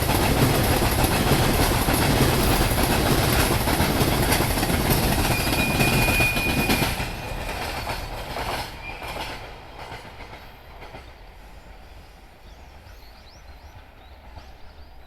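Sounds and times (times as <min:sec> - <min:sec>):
freight train wheels clattering: 0:00.0 - 0:11.3
high wheel squeal: 0:05.2 - 0:07.4.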